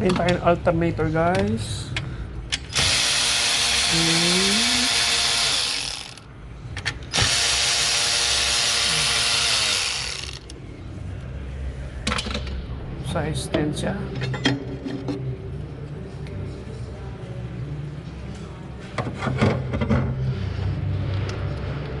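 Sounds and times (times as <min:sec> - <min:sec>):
electric ratchet spinning bolt: 0:02.7 - 0:06.2, 0:07.1 - 0:10.5.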